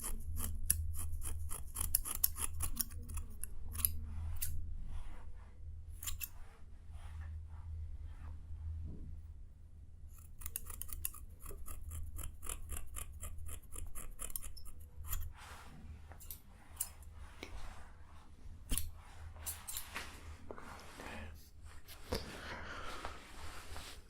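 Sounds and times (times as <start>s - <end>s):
scratching and scraping: 0.0s - 5.2s, 10.1s - 22.2s.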